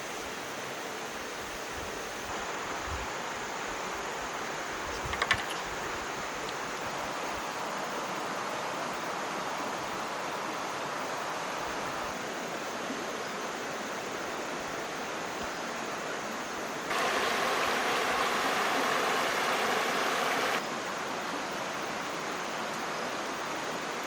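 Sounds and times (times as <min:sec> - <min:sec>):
water rushing: 0:16.9 - 0:21.9.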